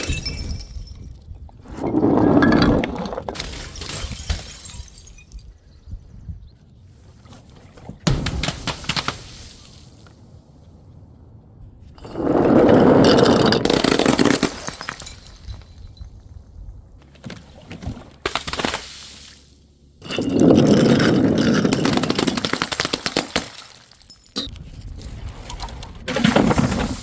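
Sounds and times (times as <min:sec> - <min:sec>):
glass bottles smashing: 0:00.0 - 0:01.2, 0:02.4 - 0:05.6, 0:13.1 - 0:16.1, 0:20.0 - 0:24.5.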